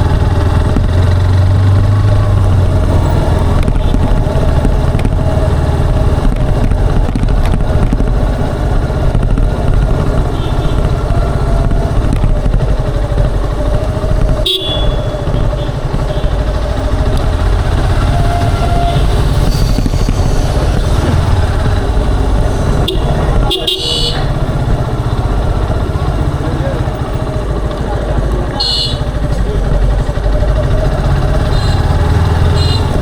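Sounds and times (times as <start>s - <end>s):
motorcycle engine running: 0.0s - 33.0s
motorcycle horn toot: 10.3s - 11.1s, 14.2s - 16.6s, 17.4s - 21.6s, 22.8s - 24.6s, 28.5s - 29.3s, 31.3s - 33.0s.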